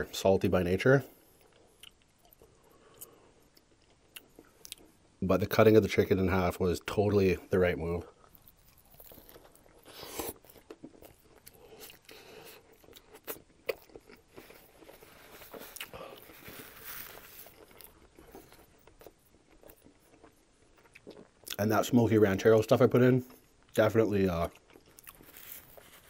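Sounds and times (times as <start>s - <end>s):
crunching of crispy coating: 7.6s - 22.8s, 23.6s - 26.0s
person biting and chewing: 8.3s - 21.6s, 24.5s - 26.0s.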